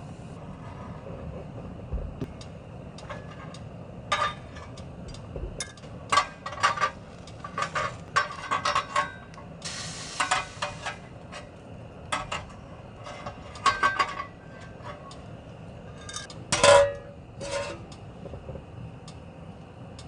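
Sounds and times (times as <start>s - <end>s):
dishes and utensils clinking: 5.6s - 9.3s, 13.1s - 15.2s, 15.9s - 17.7s.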